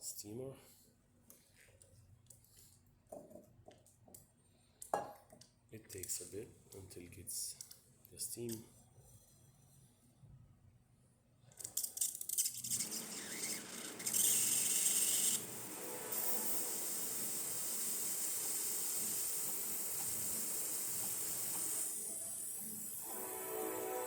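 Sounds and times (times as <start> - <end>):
steam wand sputtering and hissing: 12.6 - 24.0.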